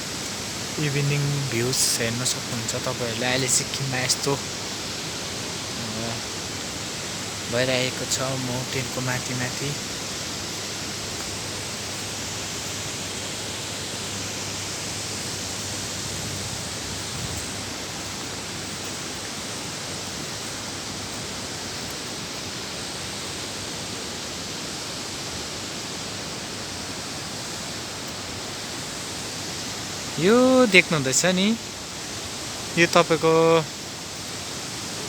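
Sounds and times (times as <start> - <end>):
waterfall and river roar: 0.0 - 35.0.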